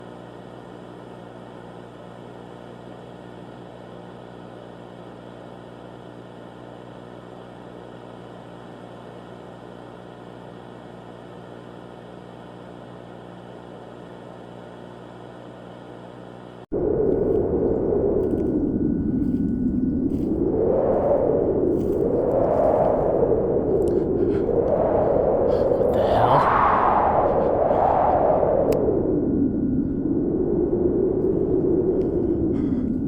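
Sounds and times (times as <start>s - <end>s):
steady hum with hiss: 0.0s - 16.6s.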